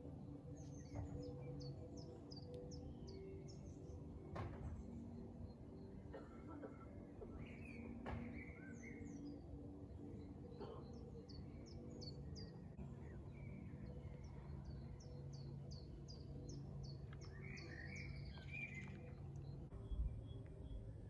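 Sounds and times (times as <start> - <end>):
small birds chirping: 7.3 - 21.0.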